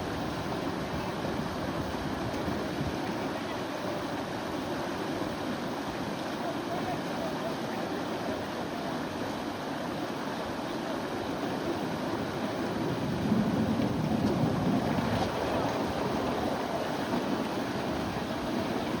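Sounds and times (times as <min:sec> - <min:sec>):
river water lapping and rushing: 0:00.0 - 0:19.0.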